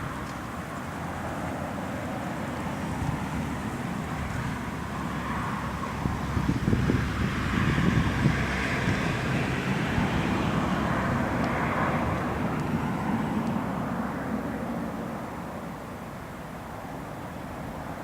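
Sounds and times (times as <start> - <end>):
airliner engines drone: 0.0 - 18.0
wind buffeting microphone: 2.8 - 14.8.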